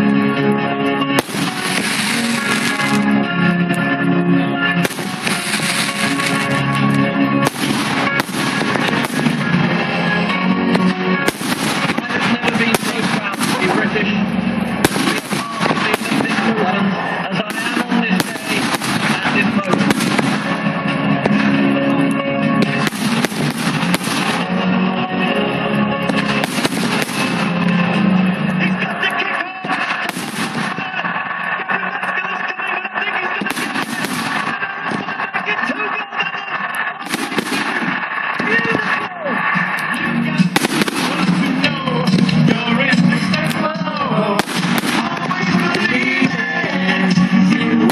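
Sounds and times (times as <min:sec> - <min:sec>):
loud music: 0:00.0 - 0:47.9
firework bangs: 0:01.1 - 0:03.2, 0:04.8 - 0:21.6, 0:22.6 - 0:24.6, 0:26.0 - 0:28.0, 0:29.6 - 0:31.5, 0:33.4 - 0:35.6, 0:36.7 - 0:42.5, 0:44.3 - 0:46.6.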